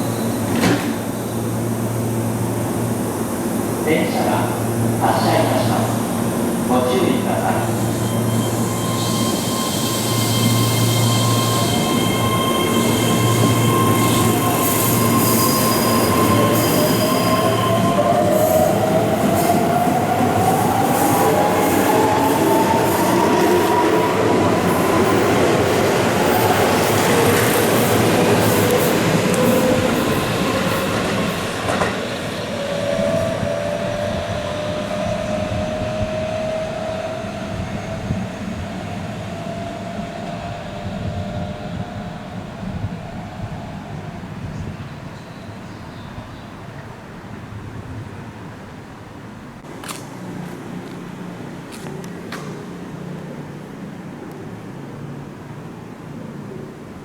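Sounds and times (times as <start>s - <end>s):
train wheels on rails: 0.0s - 2.8s, 5.2s - 39.5s
high wheel squeal: 7.4s - 18.6s.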